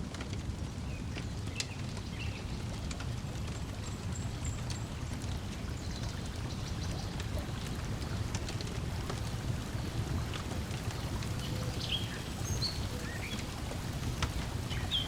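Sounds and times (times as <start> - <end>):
wood fire crackling: 0.0 - 6.5
water lapping: 4.7 - 15.0.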